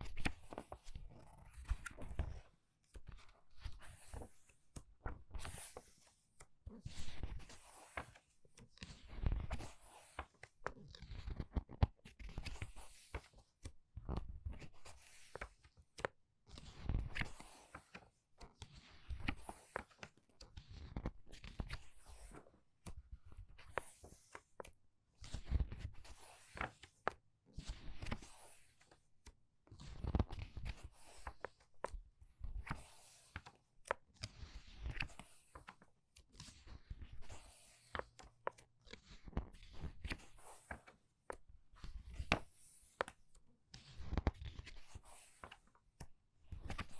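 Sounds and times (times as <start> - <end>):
book pages turning: 23.6 - 24.7, 30.0 - 32.0, 32.6 - 35.9, 37.2 - 43.2, 44.0 - 45.8.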